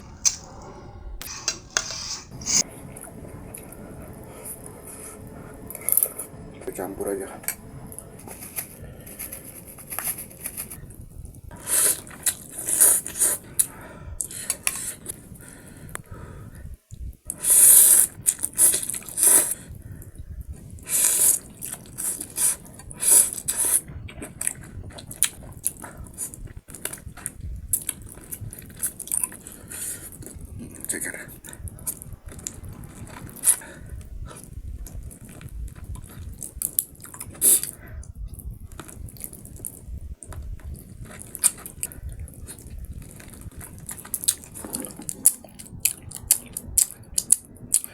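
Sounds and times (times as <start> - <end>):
chewing: 11.5 - 16.0, 17.3 - 47.9.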